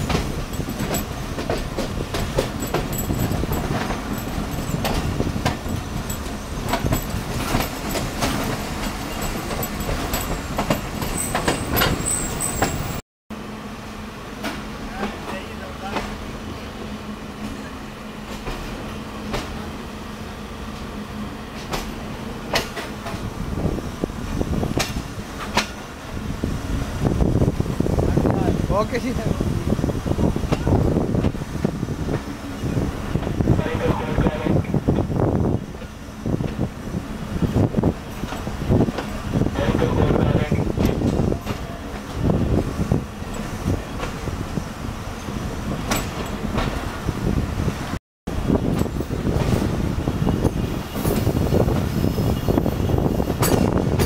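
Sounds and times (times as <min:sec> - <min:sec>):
wheels clicking over rail joints: 0:00.0 - 0:13.0, 0:21.6 - 0:23.3, 0:37.5 - 0:44.4, 0:45.7 - 0:47.0, 0:48.6 - 0:49.7, 0:52.6 - 0:54.0
train coach rumble: 0:00.0 - 0:54.0.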